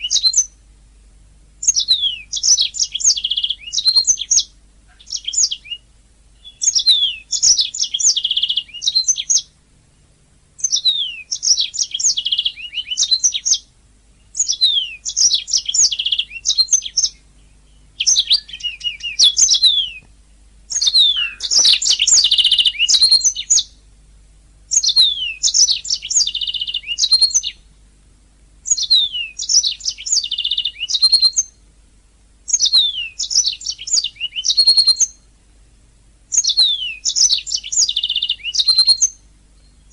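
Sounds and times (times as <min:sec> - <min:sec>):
canary singing: 0:00.0 - 0:00.6, 0:01.6 - 0:09.6, 0:10.6 - 0:24.0, 0:24.7 - 0:27.8, 0:28.6 - 0:31.7, 0:32.4 - 0:35.3, 0:36.3 - 0:39.9.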